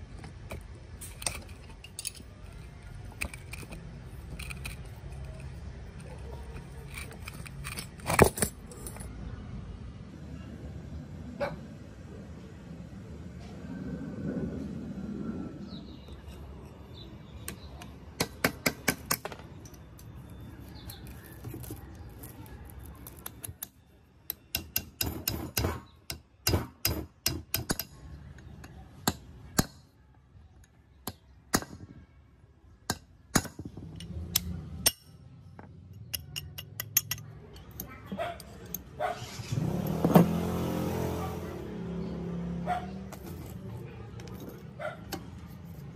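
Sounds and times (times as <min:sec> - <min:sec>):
metal parts scraping: 0:00.5 - 0:09.1, 0:19.5 - 0:23.7, 0:43.1 - 0:45.9
metal tool clicking on cast iron: 0:23.0 - 0:29.8, 0:36.0 - 0:38.9.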